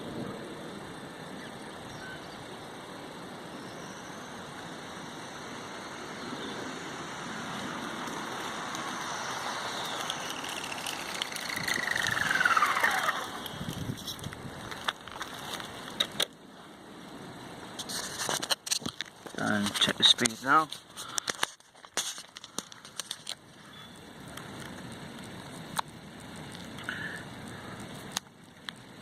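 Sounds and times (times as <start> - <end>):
rc truck tyre and drivetrain noise: 0.0 - 29.0
electric motor whine: 3.6 - 14.9.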